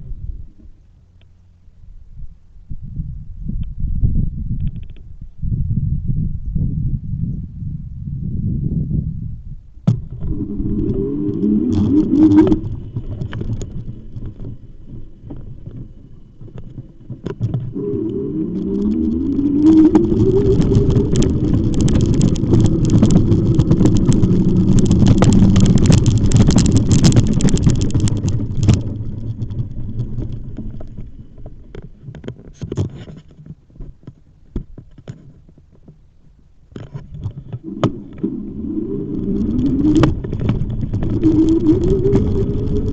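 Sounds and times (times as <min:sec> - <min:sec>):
rushing noise while riding: 0:08.4 - 0:35.7, 0:36.8 - 0:42.9
electric bike motor whining: 0:10.0 - 0:31.2, 0:37.6 - 0:42.9.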